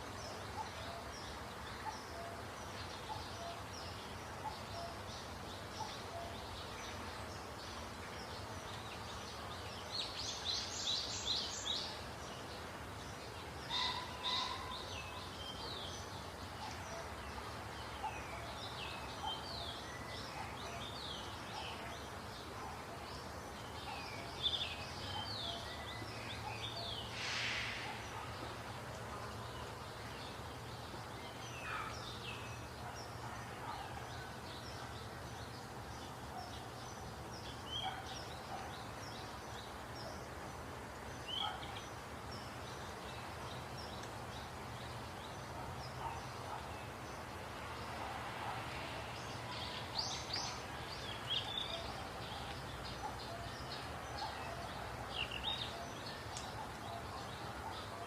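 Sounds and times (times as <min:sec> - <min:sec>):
small birds chirping: 0:00.0 - 0:58.0
brief hiss: 0:27.1 - 0:28.1.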